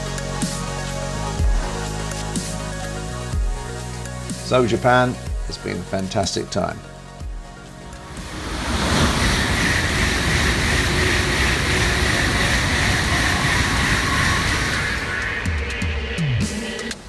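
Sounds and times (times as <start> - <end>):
high-speed train rushing: 7.8 - 17.0.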